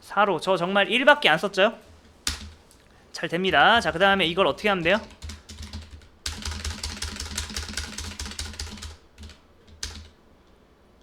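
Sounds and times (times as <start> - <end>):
computer keyboard typing: 2.2 - 2.7, 3.4 - 10.2.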